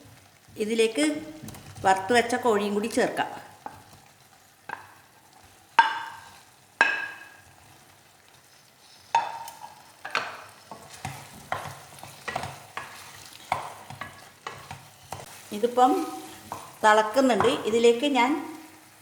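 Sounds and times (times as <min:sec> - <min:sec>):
chicken sizzling in sauce: 0:00.0 - 0:19.0
metal utensil knocking on pan: 0:05.8 - 0:07.4, 0:09.2 - 0:12.9, 0:17.3 - 0:17.7
utensil scraping pan: 0:08.8 - 0:17.6.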